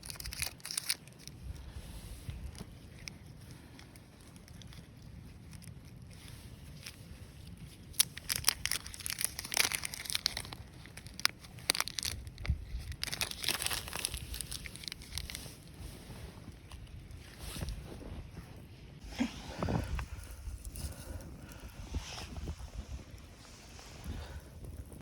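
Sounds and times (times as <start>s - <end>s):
crinkling and crunching handling: 0.0s - 25.0s
steady low rumble: 10.2s - 25.0s.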